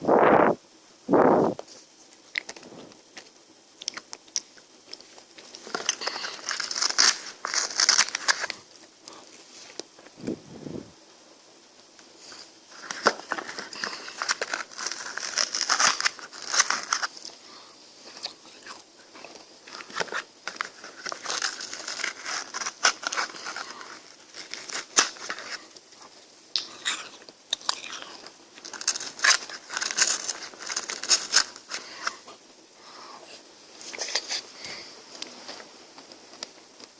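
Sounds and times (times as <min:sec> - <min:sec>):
crunchy bites and chewing: 0:03.8 - 0:09.2, 0:12.4 - 0:17.4, 0:18.1 - 0:32.3.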